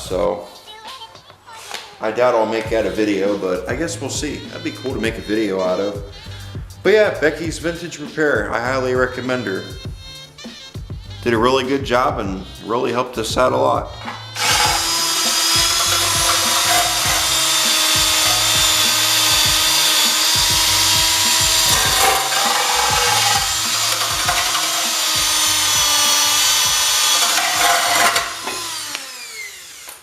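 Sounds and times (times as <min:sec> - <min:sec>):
power tool scrubbing metal: 0:14.0 - 0:30.0
tool spinning down whine: 0:14.4 - 0:30.0.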